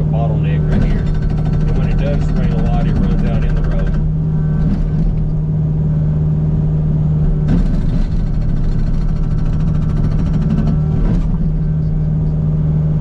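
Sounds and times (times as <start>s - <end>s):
diesel engine running: 0.0s - 13.0s
harsh rattling noise: 0.4s - 5.4s, 7.3s - 12.0s.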